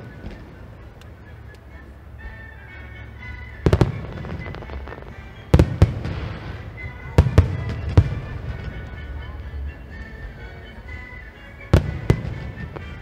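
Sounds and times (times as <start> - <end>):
fireworks bursting with sharp bangs: 0.0 - 1.2, 3.5 - 10.4, 11.7 - 13.0.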